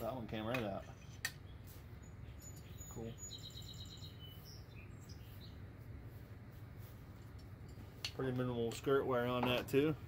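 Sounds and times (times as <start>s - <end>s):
steady low hum: 0.0s - 10.0s
bird chirping: 0.7s - 5.8s.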